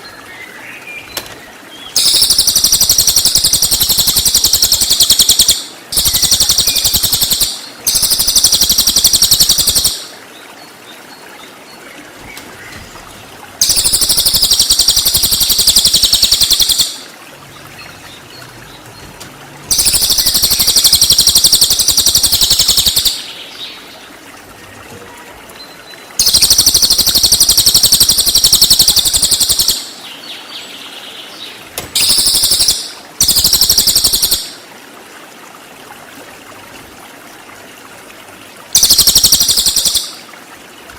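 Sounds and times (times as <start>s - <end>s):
bird rattling trills: 2.0s - 10.0s, 13.6s - 17.0s, 19.7s - 23.2s, 26.2s - 29.8s, 32.0s - 34.5s, 38.8s - 40.2s.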